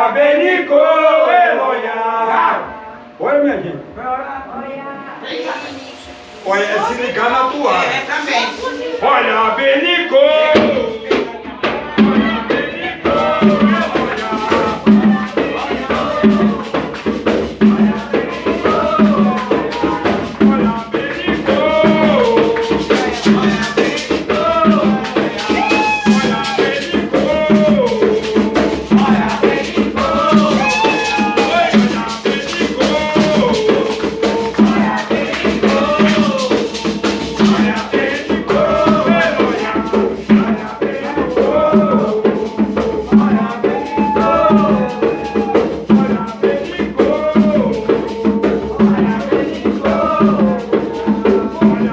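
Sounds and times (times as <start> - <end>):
steady drum beat: 2.6 - 51.9
group of voices chanting: 4.9 - 51.9
shaker rattling: 13.2 - 51.9.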